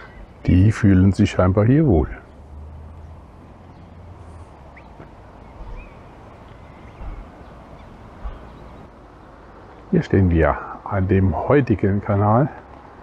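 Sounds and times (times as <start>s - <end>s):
outdoor background rush: 0.0s - 13.0s
faint bird calls: 2.2s - 8.9s.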